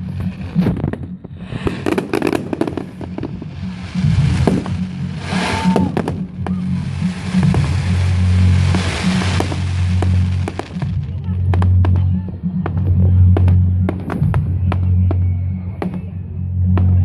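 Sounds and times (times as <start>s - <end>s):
firework whistle: 0.0s - 11.0s
fireworks banging and crackling: 0.0s - 17.0s.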